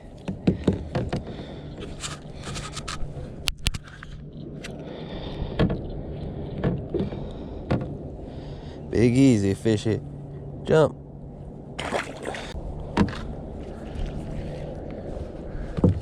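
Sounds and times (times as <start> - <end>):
steady low hum: 0.0 - 16.0
scraping and knocks in kayak: 0.2 - 3.1.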